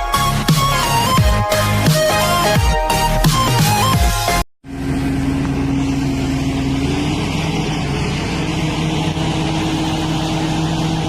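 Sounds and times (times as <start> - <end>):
music: 0.0 - 4.4
large engine running: 0.0 - 11.0.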